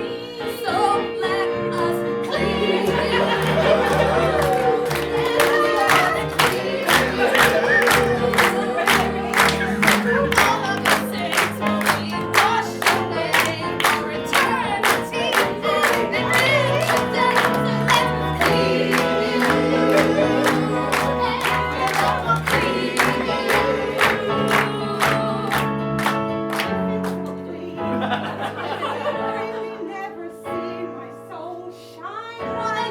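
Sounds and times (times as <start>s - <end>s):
voices singing: 0.0s - 31.0s.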